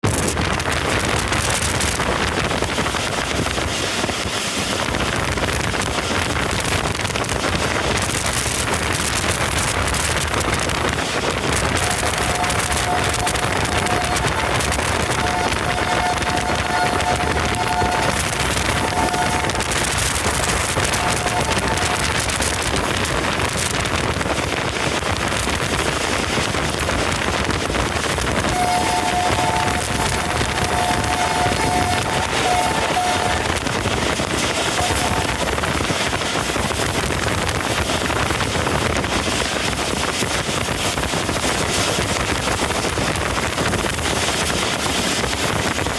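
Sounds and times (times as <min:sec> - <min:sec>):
train rushing past: 0:00.0 - 0:45.9
wind buffeting microphone: 0:00.0 - 0:45.9
two-tone train horn: 0:11.5 - 0:23.0, 0:28.2 - 0:36.1.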